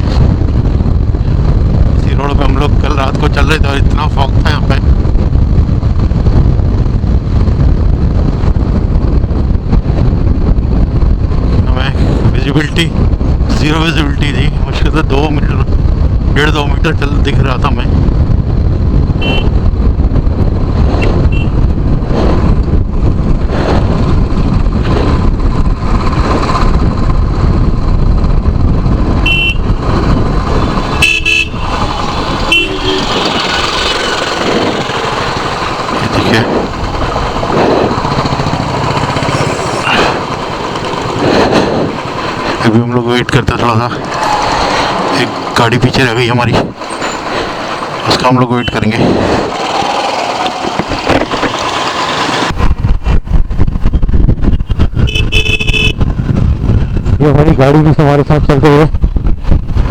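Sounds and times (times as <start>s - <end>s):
motorcycle engine and road noise: 0.0s - 59.9s
wind buffeting microphone: 0.0s - 59.9s
vehicle horn tooting: 19.2s - 19.6s, 21.0s - 21.6s, 29.2s - 29.7s, 30.9s - 31.8s, 32.5s - 33.5s, 55.0s - 56.0s.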